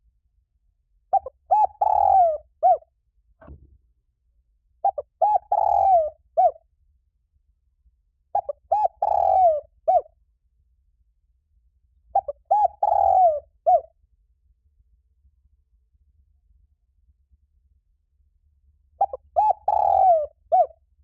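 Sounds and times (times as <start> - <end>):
dove cooing: 1.1 - 2.8, 4.8 - 6.6, 8.4 - 10.1, 12.2 - 13.9, 19.0 - 20.7.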